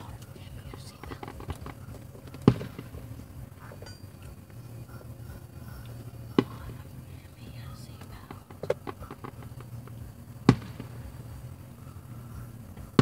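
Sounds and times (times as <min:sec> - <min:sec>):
firework shell bursting: 0:00.0 - 0:05.2, 0:08.2 - 0:13.0.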